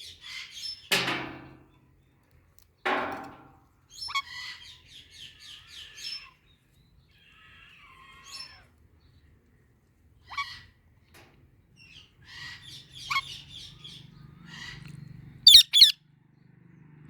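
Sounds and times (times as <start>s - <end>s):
parrots chirping: 15.5s - 16.0s
shrill parrot screeches: 15.5s - 16.0s.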